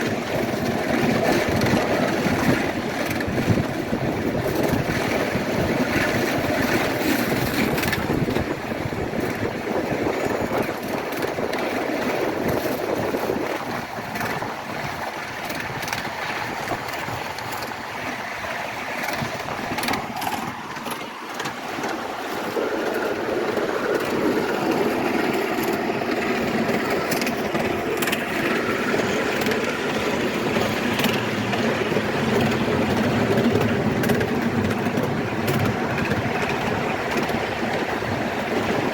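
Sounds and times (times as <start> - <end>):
miniature train engine running: 0.0 - 38.9
sharp track clicks: 10.2 - 18.2, 18.9 - 38.8.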